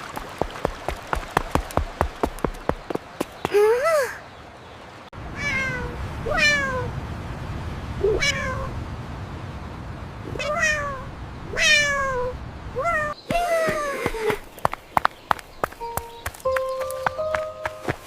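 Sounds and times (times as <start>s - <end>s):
cat meowing: 5.4s - 6.9s, 8.0s - 8.7s, 10.3s - 13.2s.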